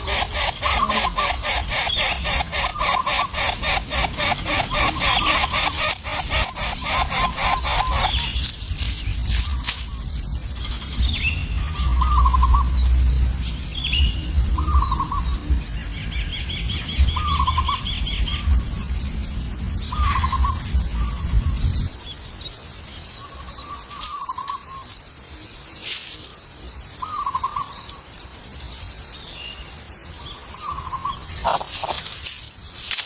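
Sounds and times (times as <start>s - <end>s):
low rumble: 7.8s - 22.0s.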